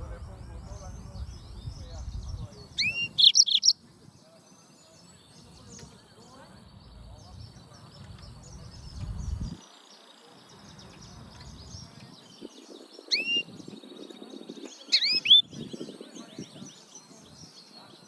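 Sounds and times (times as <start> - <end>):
canary twittering song: 0.5 - 3.8, 6.7 - 18.0
rising whistled bird calls: 2.8 - 3.8, 13.1 - 13.5, 14.9 - 15.5.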